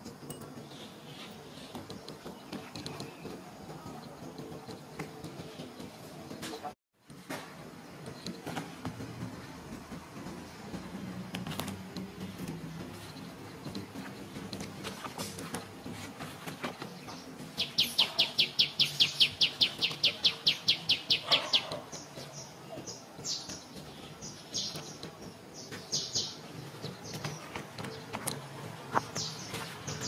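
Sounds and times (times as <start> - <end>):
bird chirps: 17.0 - 30.0.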